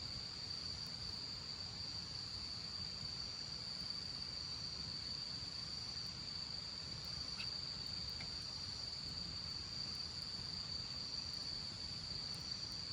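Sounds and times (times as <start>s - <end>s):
crickets trilling: 0.1s - 12.9s
faint ticks: 7.0s - 9.2s.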